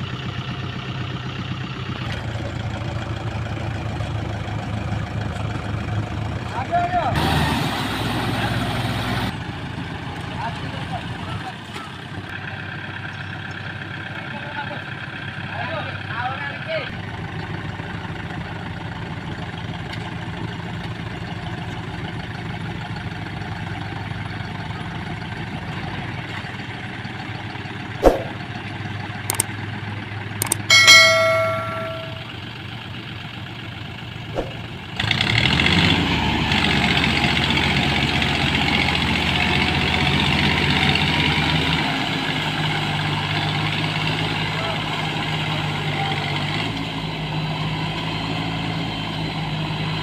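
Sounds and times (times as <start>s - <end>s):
tractor diesel engine idling: 0.0s - 50.0s
sharp clicks: 30.4s - 30.7s
short metallic ring: 30.4s - 32.4s.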